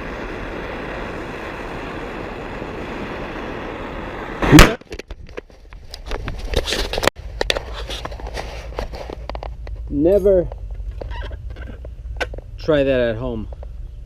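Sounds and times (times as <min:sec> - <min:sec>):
flame rushing: 0:00.0 - 0:09.9.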